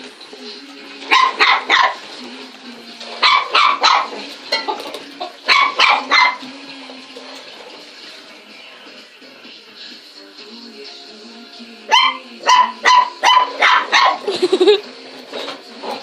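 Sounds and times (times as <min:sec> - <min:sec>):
dog barking: 0:01.1 - 0:02.0, 0:03.2 - 0:04.2, 0:05.5 - 0:06.4, 0:11.9 - 0:14.3.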